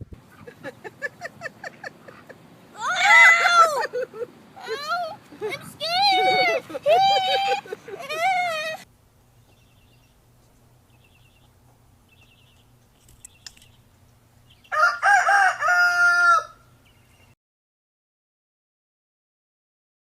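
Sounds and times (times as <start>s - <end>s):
rooster crowing: 14.6s - 16.7s.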